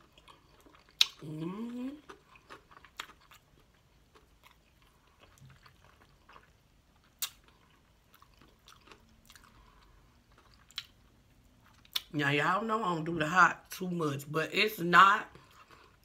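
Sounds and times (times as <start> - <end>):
close chewing: 0.0 - 11.0.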